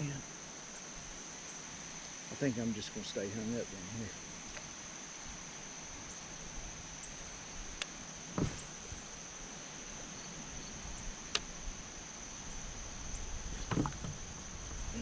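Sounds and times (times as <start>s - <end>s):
insects droning: 0.0s - 15.0s
dull knock: 8.4s - 8.8s.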